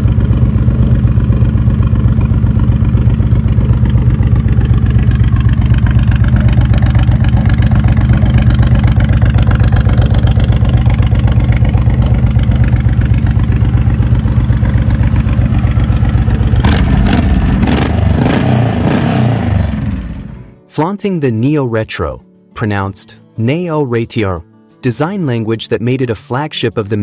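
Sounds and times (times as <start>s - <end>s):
motorcycle engine idling: 0.0s - 20.6s.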